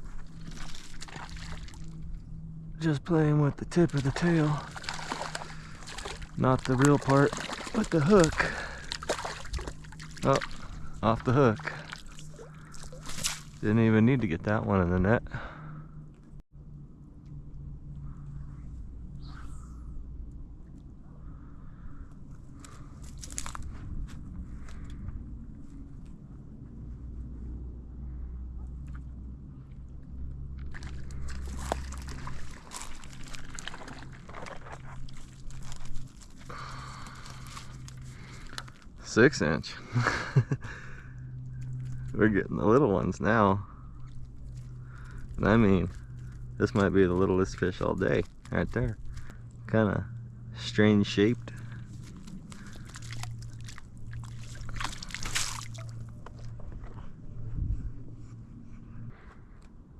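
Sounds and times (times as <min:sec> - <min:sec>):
water splashing: 0:00.0 - 0:02.2, 0:03.6 - 0:13.8, 0:30.6 - 0:39.1, 0:51.2 - 0:56.6
steady low hum: 0:00.0 - 0:59.9.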